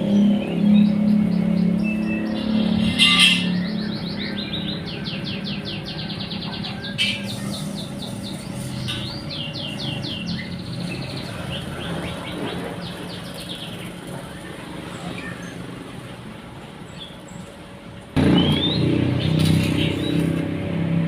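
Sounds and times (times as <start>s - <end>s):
bird chirping: 0.0s - 15.7s, 18.2s - 20.4s.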